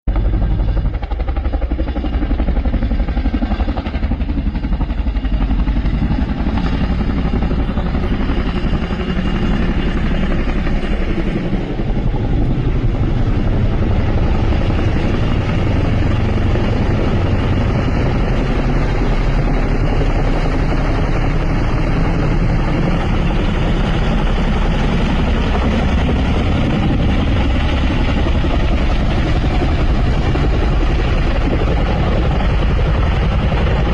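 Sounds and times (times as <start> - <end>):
helicopter rotor and engine: 0.1 - 33.9.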